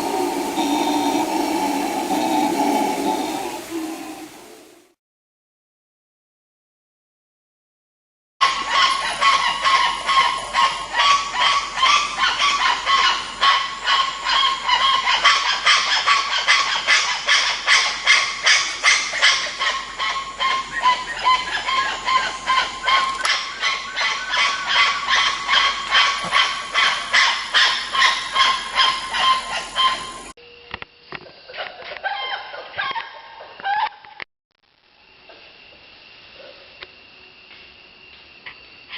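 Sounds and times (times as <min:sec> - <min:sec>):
primate honking calls: 0:00.0 - 0:04.7.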